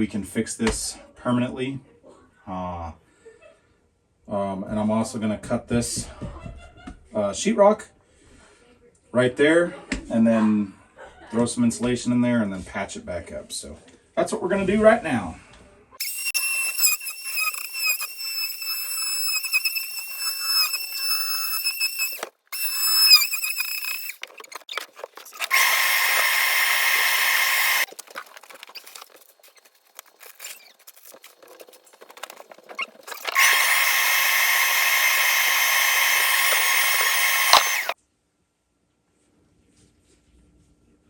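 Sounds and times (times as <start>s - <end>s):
power tool whining: 16.0s - 29.1s, 32.2s - 38.0s.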